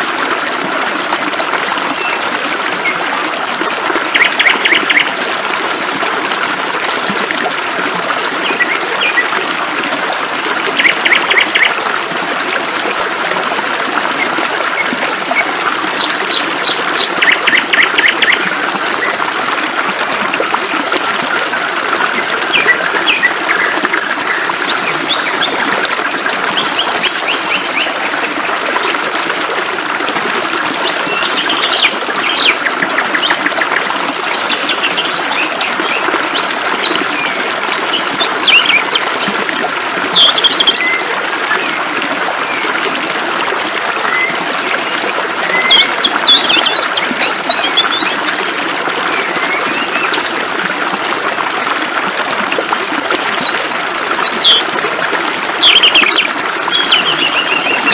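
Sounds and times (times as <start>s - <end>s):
birds chirping and trilling: 33.2s - 39.4s, 40.1s - 41.0s, 53.4s - 54.8s, 55.6s - 57.9s.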